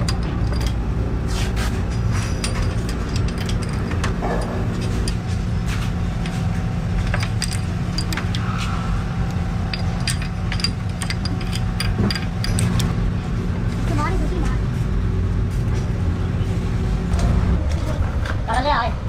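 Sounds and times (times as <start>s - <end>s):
metallic clicks of small parts: 0.0s - 0.8s, 1.9s - 8.6s, 9.2s - 13.0s
low machine hum: 0.0s - 19.0s.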